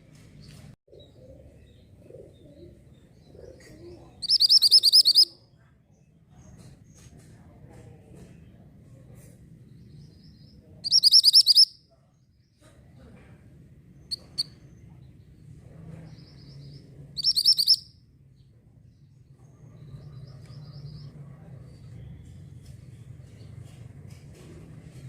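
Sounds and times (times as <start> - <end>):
bird singing rapid high notes: 4.2 - 5.3, 10.8 - 11.8, 17.2 - 17.9
short sharp bird chips: 10.8 - 11.7.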